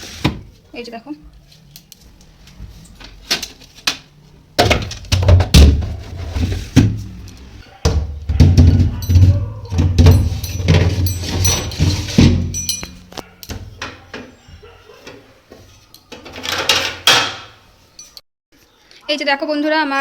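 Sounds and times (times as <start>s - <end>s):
containers knocking and clattering: 4.6s - 7.2s, 7.8s - 14.4s.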